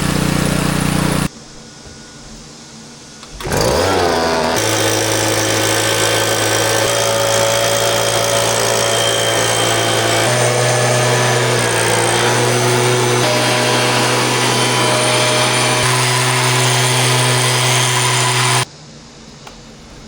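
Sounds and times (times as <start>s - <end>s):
electric motor winding up: 0.0s - 1.3s, 3.2s - 18.7s.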